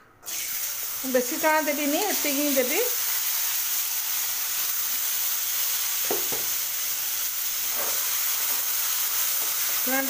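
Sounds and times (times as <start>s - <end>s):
chickpeas sizzling in oil: 0.2s - 10.0s.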